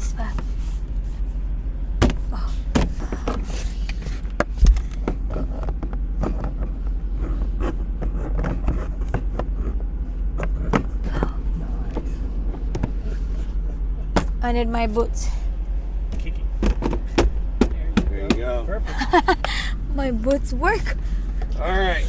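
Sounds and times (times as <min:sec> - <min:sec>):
steady low rumble: 0:00.0 - 0:07.4, 0:08.8 - 0:17.9
heavy thump: 0:02.0 - 0:03.6, 0:14.2 - 0:14.6
objects being handled: 0:02.0 - 0:04.8, 0:14.2 - 0:14.4.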